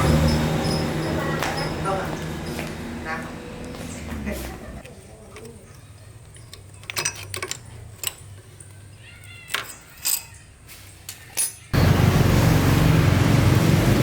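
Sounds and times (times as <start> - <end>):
metallic tool clinks: 5.6 - 11.8
motorbike engine running: 11.8 - 14.0.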